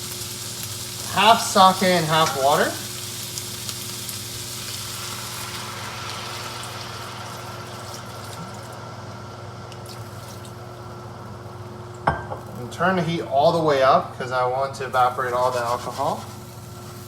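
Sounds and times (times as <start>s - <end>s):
liquid bubbling in hot pan: 0.0s - 9.0s.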